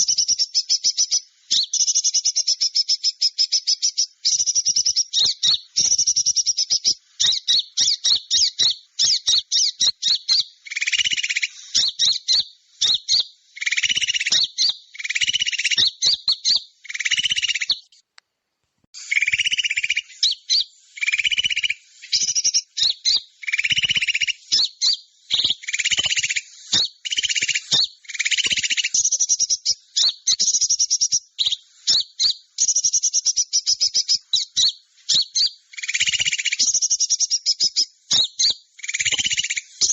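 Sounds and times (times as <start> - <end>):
small birds chirping and trilling: 0.0 - 18.1, 19.0 - 39.9
harsh buzzy scolding calls: 19.0 - 39.9.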